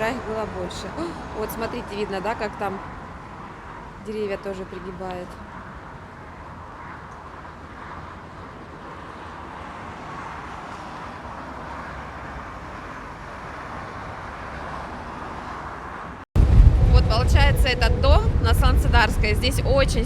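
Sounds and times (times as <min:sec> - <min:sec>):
strong wind blowing: 0:15.0 - 0:20.0.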